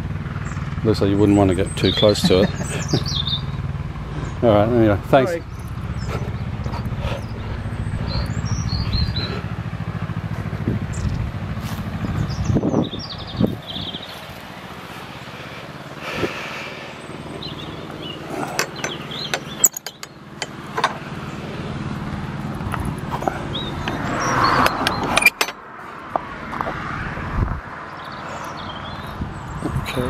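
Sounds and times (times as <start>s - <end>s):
vehicle engine running: 0.0s - 30.0s
bird chirps: 1.2s - 4.4s, 5.4s - 9.5s, 16.9s - 20.4s
wind noise on microphone: 10.5s - 14.3s, 26.9s - 27.7s, 29.0s - 30.0s.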